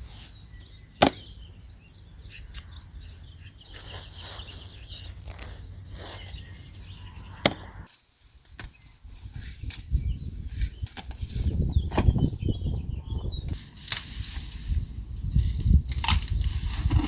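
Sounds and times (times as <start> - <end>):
birds chirping faintly: 0.0 - 13.6
weeds being pulled: 3.7 - 12.2, 13.5 - 17.0.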